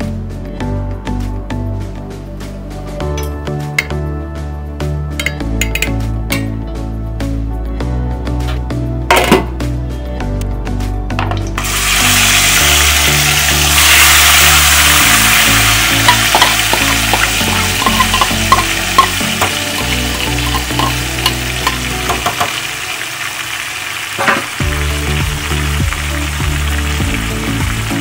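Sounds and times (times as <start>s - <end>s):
food sizzling in hot oil: 11.6s - 28.0s.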